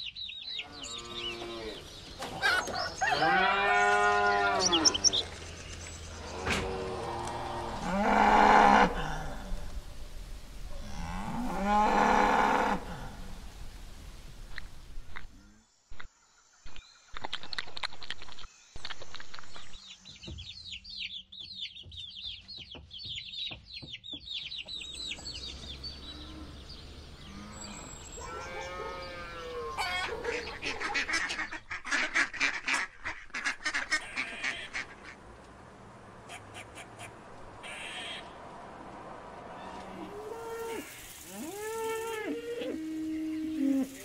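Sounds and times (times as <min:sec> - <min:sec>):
chicks peeping: 0:20.0 - 0:28.1
goose honking: 0:28.2 - 0:35.2.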